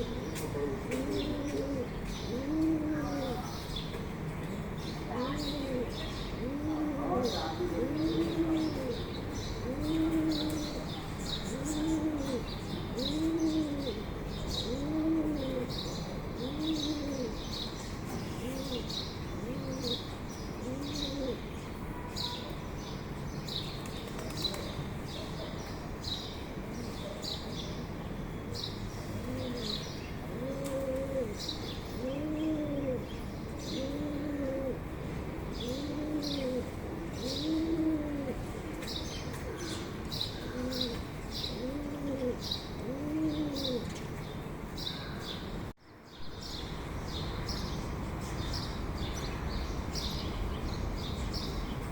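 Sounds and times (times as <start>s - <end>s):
bird hooting: 32.0s - 33.1s, 33.7s - 34.8s, 35.6s - 38.4s, 40.4s - 43.9s.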